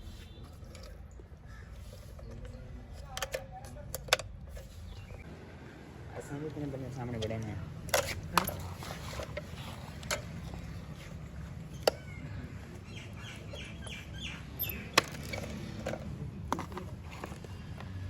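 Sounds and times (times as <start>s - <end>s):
tools knocking and clicking: 2.0s - 5.2s, 13.4s - 17.9s.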